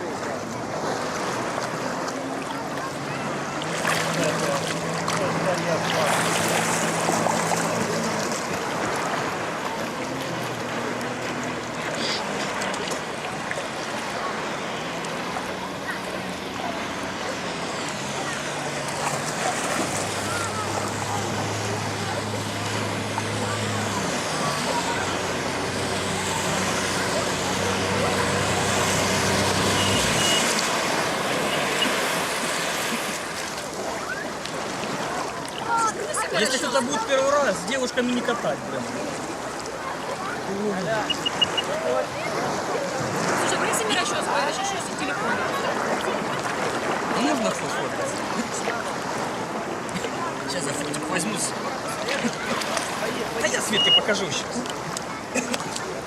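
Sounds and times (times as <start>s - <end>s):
engine humming: 0.0s - 36.1s
boat motor droning: 0.0s - 56.0s
water rushing: 0.0s - 56.0s
wind: 0.0s - 56.0s
short high beeps: 29.7s - 30.6s, 41.0s - 41.8s, 53.6s - 54.2s.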